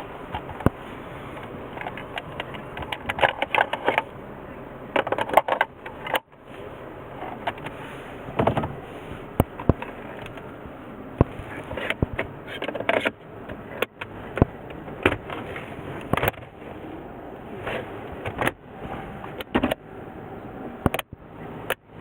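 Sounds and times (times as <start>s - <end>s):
scraping and rustling: 5.0s - 10.6s, 11.2s - 14.4s, 15.2s - 19.8s.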